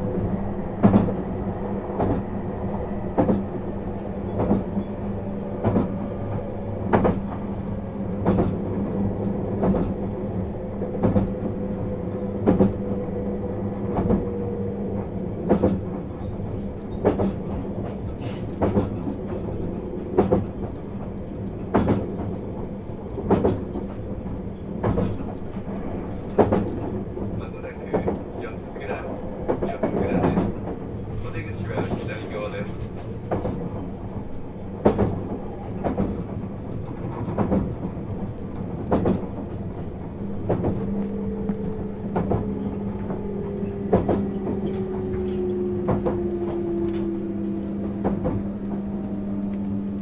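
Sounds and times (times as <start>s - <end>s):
steady train hum: 0.0s - 50.0s
wheels clacking over rail joints: 15.4s - 50.0s.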